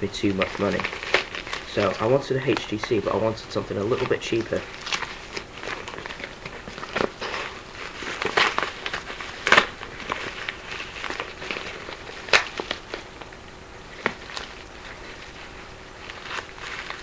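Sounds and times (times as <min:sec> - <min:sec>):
packaging crackling and clicking: 0:00.1 - 0:13.4.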